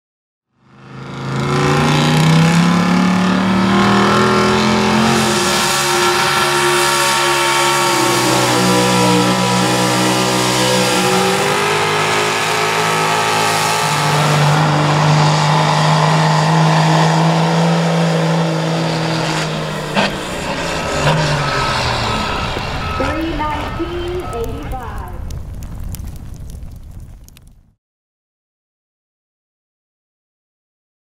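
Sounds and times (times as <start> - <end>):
truck engine at high revs: 0.6 - 24.8.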